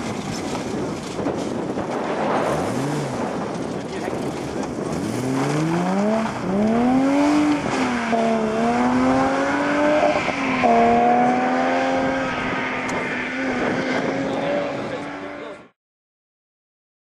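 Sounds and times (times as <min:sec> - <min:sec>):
car engine accelerating hard: 0:02.3 - 0:15.7.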